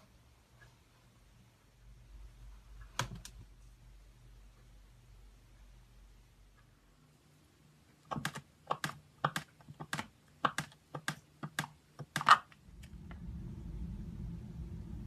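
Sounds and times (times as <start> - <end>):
low rumble: 12.6 - 15.0.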